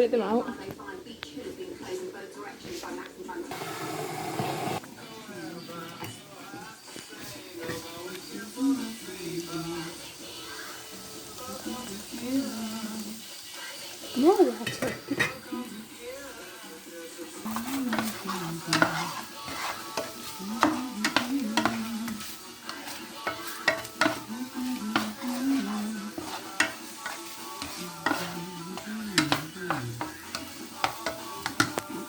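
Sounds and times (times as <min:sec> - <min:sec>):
food sizzling in a frying pan: 0:03.2 - 0:32.0
utensil scraping a pan: 0:17.4 - 0:32.0.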